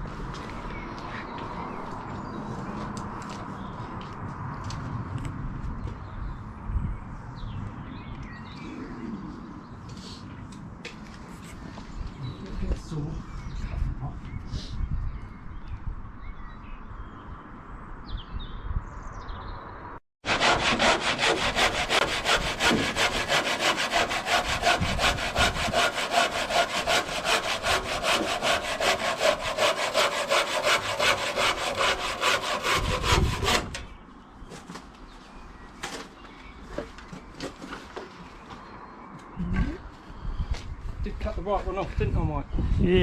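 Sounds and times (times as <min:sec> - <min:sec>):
handsaw cutting timber: 0:20.2 - 0:33.9.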